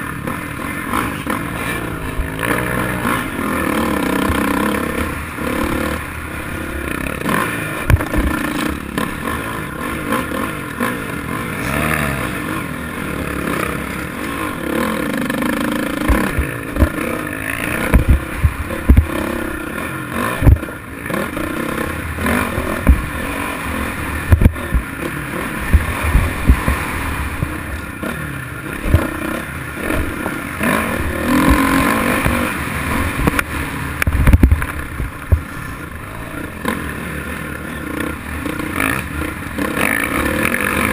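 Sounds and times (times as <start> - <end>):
motorcycle engine revving: 0.0 - 40.9
bike thumping and rattling: 7.8 - 9.2, 15.9 - 19.4, 20.3 - 20.7, 22.5 - 23.4, 24.2 - 25.0, 25.6 - 27.6, 33.1 - 35.8.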